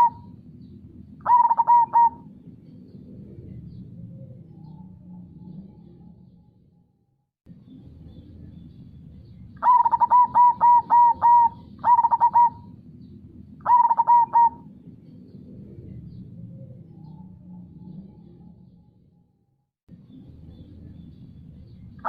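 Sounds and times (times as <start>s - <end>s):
dove cooing: 0.0s - 5.9s, 9.6s - 12.9s, 13.6s - 18.3s.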